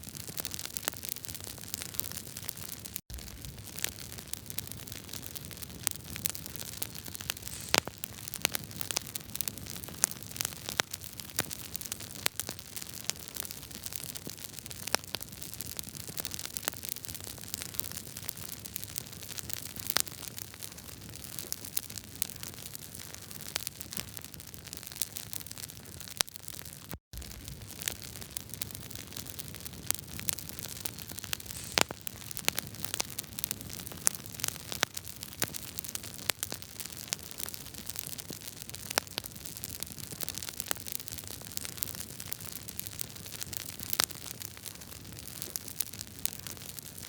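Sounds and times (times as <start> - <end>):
wood fire crackling: 0.1 - 14.9, 27.2 - 47.0.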